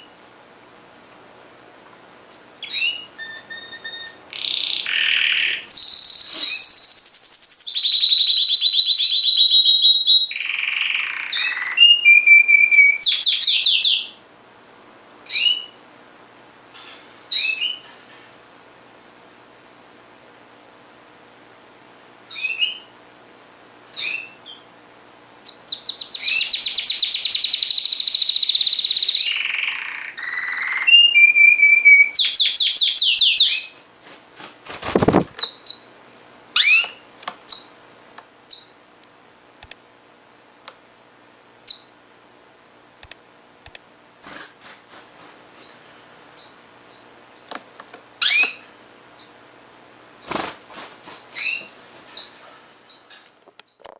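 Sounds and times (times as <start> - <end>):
canary chirps and calls: 2.6 - 14.2, 15.2 - 15.8, 17.3 - 17.9, 22.3 - 22.9, 23.9 - 24.7, 25.4 - 33.8, 35.4 - 36.0, 36.6 - 37.8, 38.5 - 38.8, 41.7 - 42.0, 45.6 - 47.5, 48.2 - 49.4, 51.1 - 53.8
canary trilling: 2.6 - 14.2, 15.3 - 15.8, 17.3 - 17.9, 22.3 - 22.9, 23.9 - 24.6, 25.4 - 33.8, 36.6 - 37.8, 38.5 - 38.8, 41.7 - 42.0, 45.6 - 47.5, 48.2 - 49.4, 51.1 - 53.8.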